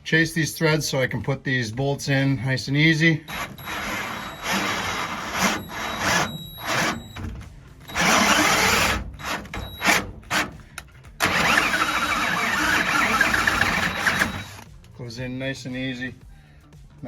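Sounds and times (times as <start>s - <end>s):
power drill turning a tap: 11.2s - 14.7s.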